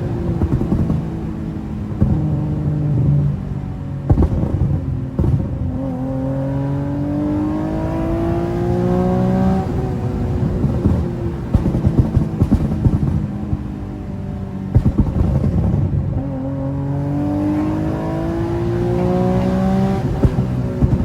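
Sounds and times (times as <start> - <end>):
car engine accelerating: 0.0 - 21.0
sharp knocks: 17.2 - 21.0.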